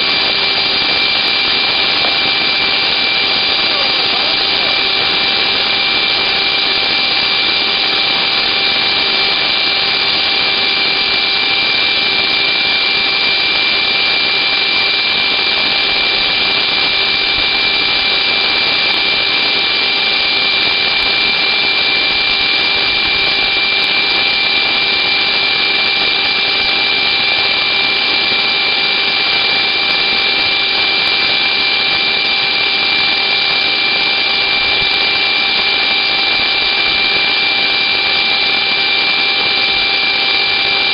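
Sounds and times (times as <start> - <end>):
vacuum cleaner motor running: 0.0 - 40.9.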